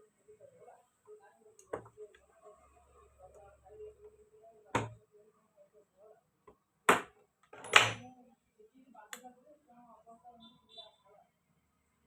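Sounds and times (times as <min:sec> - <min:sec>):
tools knocking on workbench: 0:04.8 - 0:05.0, 0:06.9 - 0:08.0.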